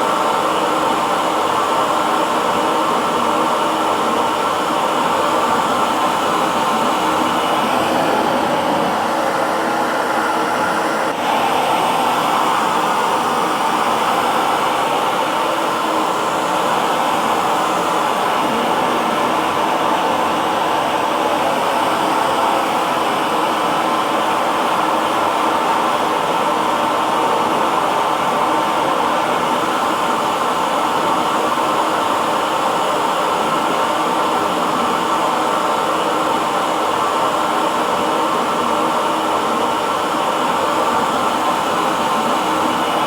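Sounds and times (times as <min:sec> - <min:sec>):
hair dryer blowing: 0:00.0 - 0:43.0.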